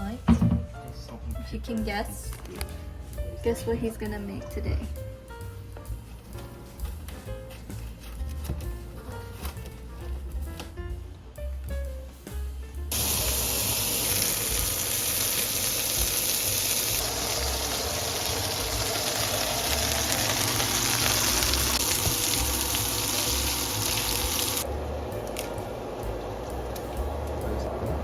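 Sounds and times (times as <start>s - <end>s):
tap running into a sink: 21.0s - 24.6s.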